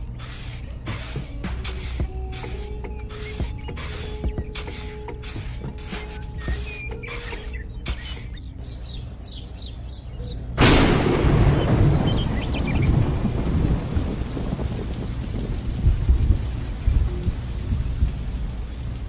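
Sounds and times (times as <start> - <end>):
heavy rain: 0.0 - 8.5, 10.6 - 19.0
loud thunder crack: 10.6 - 16.3.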